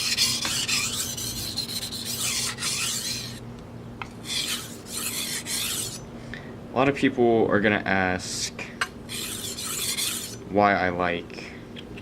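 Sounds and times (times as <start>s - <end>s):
knife scraping on whetstone: 0.0s - 3.4s, 4.2s - 6.0s, 9.1s - 10.4s.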